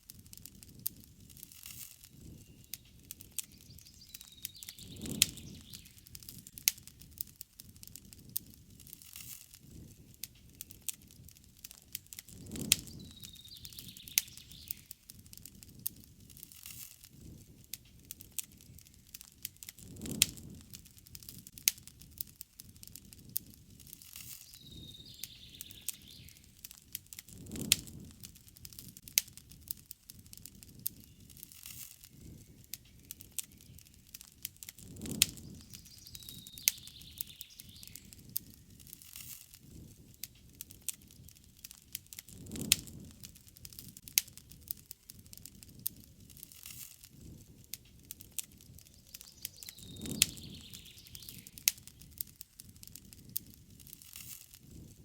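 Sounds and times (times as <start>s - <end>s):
campfire crackling and popping: 0.0s - 55.0s
low rush of flame: 0.0s - 55.0s.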